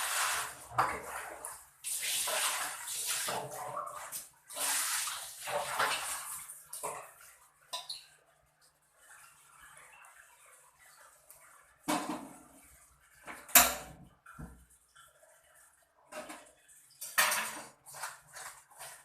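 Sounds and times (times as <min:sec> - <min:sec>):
dishes and utensils clattering: 0:07.7 - 0:08.0, 0:16.1 - 0:19.0.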